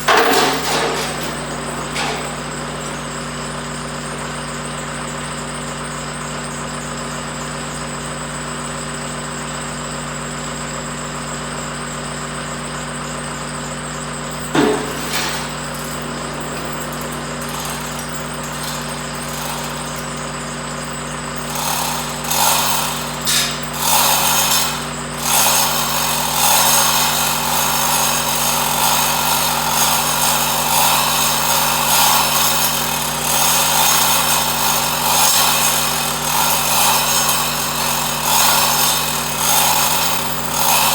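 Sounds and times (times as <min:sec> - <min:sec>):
sharp metal clank: 0:00.0 - 0:03.7, 0:14.4 - 0:27.1
power tool running: 0:00.0 - 0:40.9.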